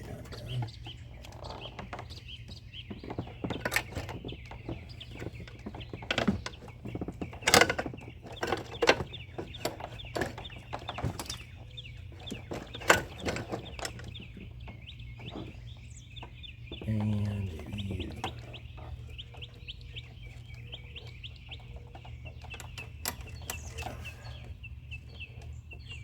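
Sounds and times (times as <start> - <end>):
steady low hum: 0.0 - 1.4, 10.0 - 26.0.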